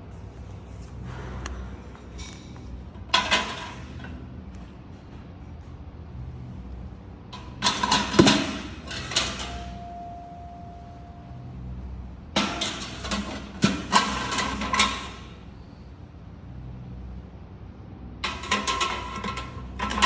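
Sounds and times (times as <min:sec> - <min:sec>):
metal fireplace tools clanking: 0:00.4 - 0:04.2, 0:12.4 - 0:15.3, 0:18.2 - 0:20.0.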